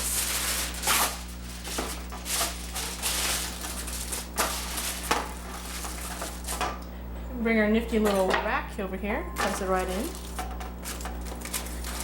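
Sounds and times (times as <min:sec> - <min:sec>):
aluminum foil crinkling: 0:00.0 - 0:06.8, 0:09.4 - 0:12.0
steady low hum: 0:00.0 - 0:12.0.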